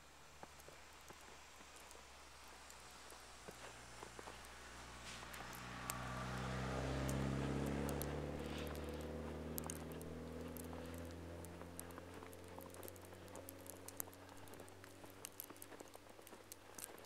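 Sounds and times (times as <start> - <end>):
footsteps crunching in snow: 0.4 - 17.0
distant vehicle engine passing: 3.6 - 16.0.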